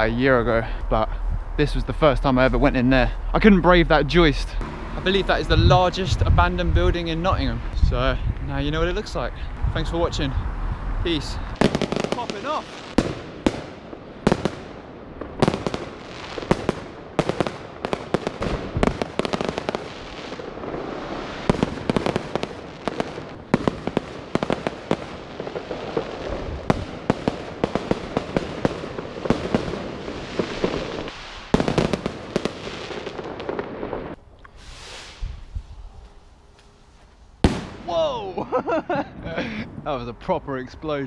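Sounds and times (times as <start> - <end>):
fireworks bangs and crackles: 11.1 - 35.5, 37.4 - 38.0.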